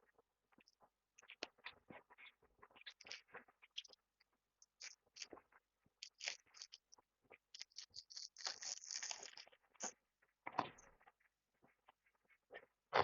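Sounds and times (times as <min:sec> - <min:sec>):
wet chewing clicks: 0:00.6 - 0:04.0, 0:04.6 - 0:05.4, 0:06.0 - 0:10.0
crisp crunches: 0:07.5 - 0:10.0.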